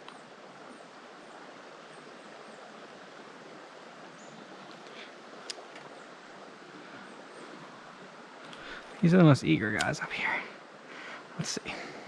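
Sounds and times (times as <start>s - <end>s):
creek flowing: 0.0s - 12.0s
sharp click: 9.7s - 10.0s.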